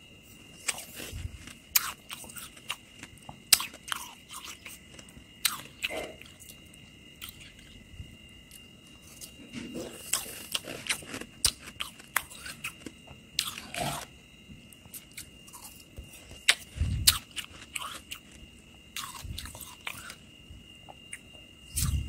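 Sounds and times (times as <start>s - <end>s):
chewing frost crunches: 8.5s - 14.1s, 14.9s - 18.4s.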